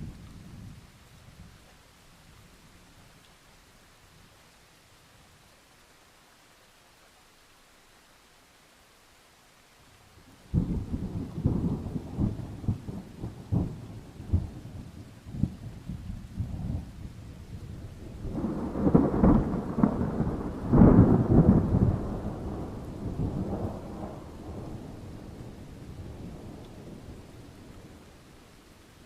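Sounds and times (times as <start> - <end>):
steady rain: 0.0 - 29.0
thunder rumbling and cracking: 10.5 - 28.0.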